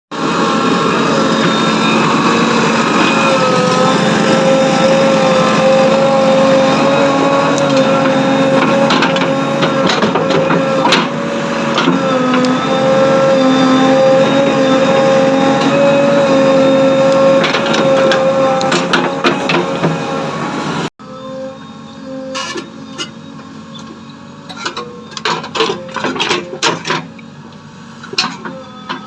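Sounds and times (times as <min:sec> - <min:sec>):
heavy machinery engine humming: 0:00.1 - 0:29.0.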